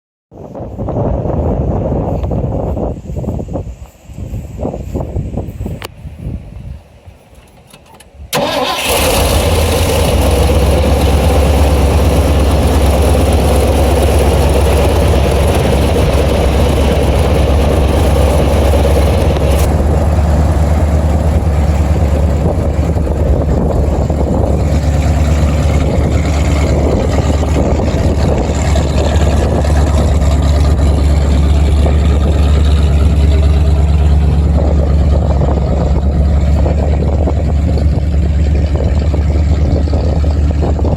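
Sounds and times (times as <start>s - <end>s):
truck engine idling: 8.4s - 40.9s.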